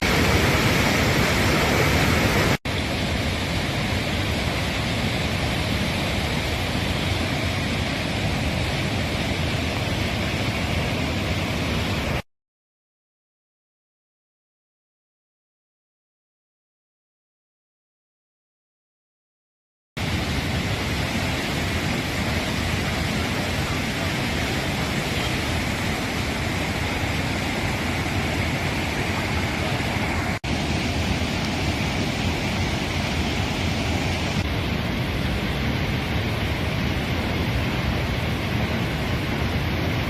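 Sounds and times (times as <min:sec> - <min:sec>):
flood water rushing: 0:00.0 - 0:12.2, 0:20.0 - 0:40.0.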